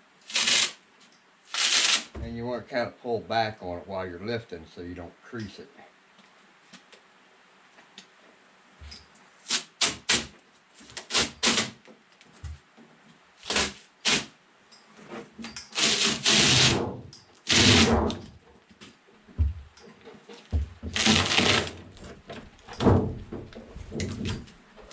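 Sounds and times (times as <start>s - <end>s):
metal scraper scraping sheet metal: 0.3s - 0.8s, 11.0s - 11.8s, 13.4s - 14.3s, 15.7s - 18.2s, 21.0s - 21.8s.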